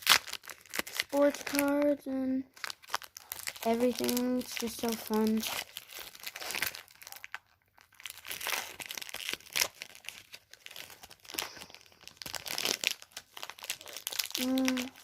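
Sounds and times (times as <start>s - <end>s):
foil wrapper crinkling: 0.0s - 15.0s.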